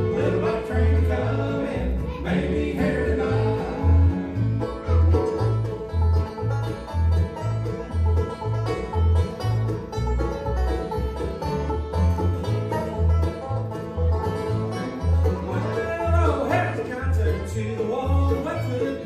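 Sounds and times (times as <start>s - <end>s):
bluegrass string instruments: 0.0s - 19.0s
steady bass line: 0.0s - 19.0s.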